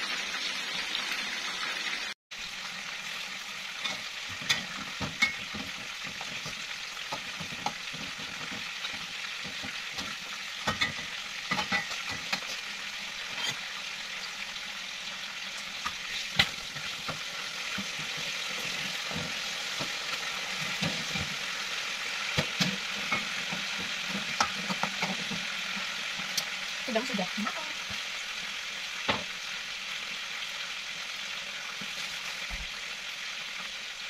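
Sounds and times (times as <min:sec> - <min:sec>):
food sizzling in hot oil: 0:00.0 - 0:34.0
metal spatula scraping a pan: 0:03.6 - 0:13.9, 0:15.8 - 0:26.5.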